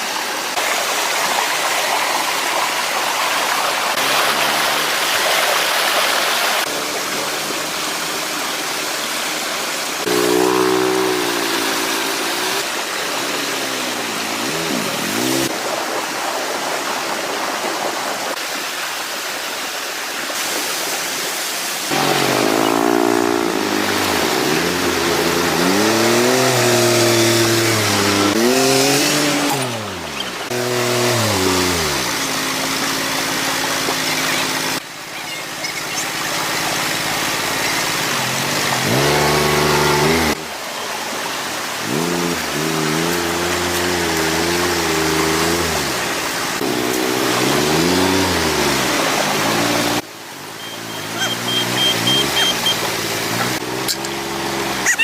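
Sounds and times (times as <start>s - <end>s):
tractor engine revving: 6.6s - 15.5s, 21.9s - 40.6s, 41.7s - 55.0s.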